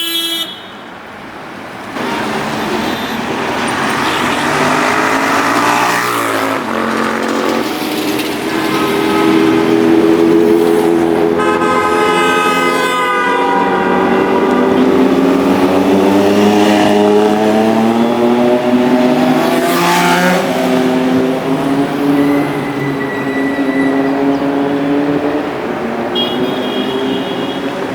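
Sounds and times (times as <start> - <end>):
car horn honking: 0.0 - 0.9, 2.0 - 6.8, 8.5 - 16.5, 26.1 - 27.9
vehicle engines in traffic: 0.0 - 27.9.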